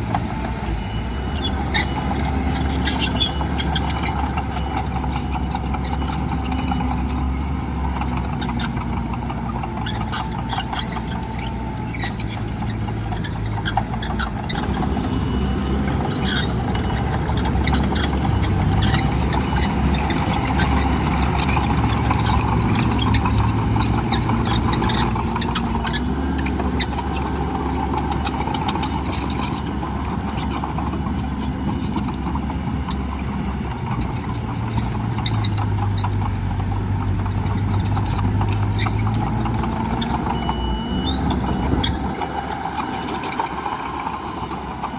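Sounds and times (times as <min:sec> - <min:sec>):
heavy diesel machinery engine: 0:00.0 - 0:44.9.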